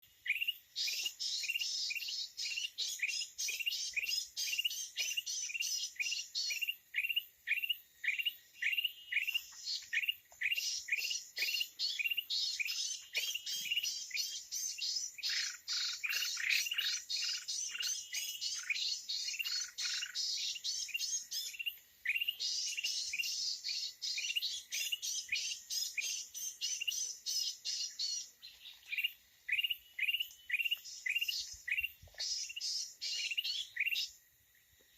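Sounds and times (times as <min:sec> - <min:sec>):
high bird twittering: 0:00.2 - 0:34.2.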